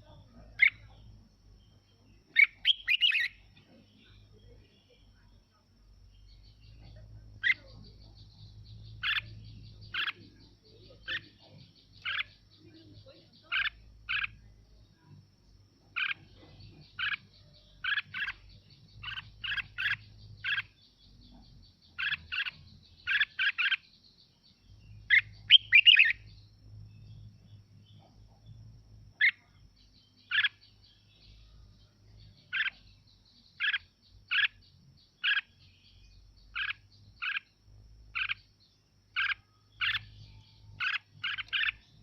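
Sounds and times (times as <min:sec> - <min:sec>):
bird singing sharp notes: 0:02.3 - 0:03.4, 0:24.8 - 0:27.2.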